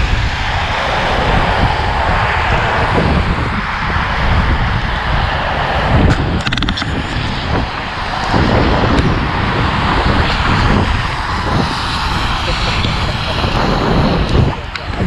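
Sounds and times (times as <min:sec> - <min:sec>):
road traffic: 0:00.0 - 0:15.0
rushing wind: 0:00.0 - 0:15.0
wind rumble on microphone: 0:00.0 - 0:15.0.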